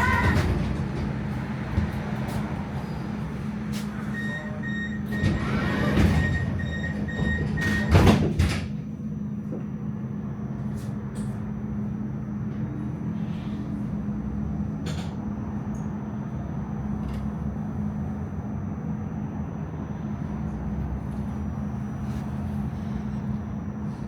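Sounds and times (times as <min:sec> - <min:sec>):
sliding doors shutting knock: 0:00.0 - 0:02.0, 0:05.2 - 0:08.7.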